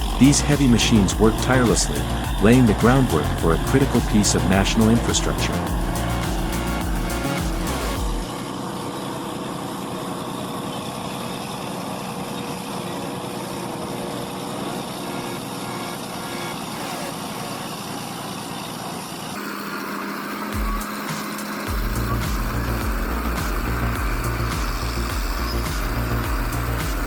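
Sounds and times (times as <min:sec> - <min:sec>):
diesel engine of heavy machinery: 0:00.0 - 0:27.0.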